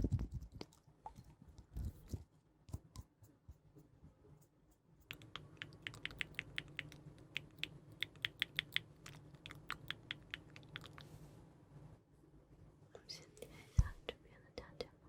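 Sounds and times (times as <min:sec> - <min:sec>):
faint low hum: 0:00.0 - 0:15.0
rapid light tapping clicks: 0:05.1 - 0:11.0.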